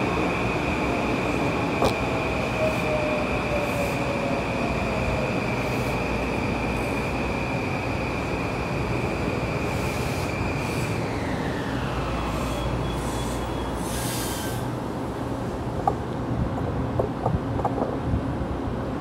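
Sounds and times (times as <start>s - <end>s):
high train whine: 0.0s - 19.0s
train rumbling past: 0.0s - 19.0s
hissing bursts: 12.3s - 14.7s.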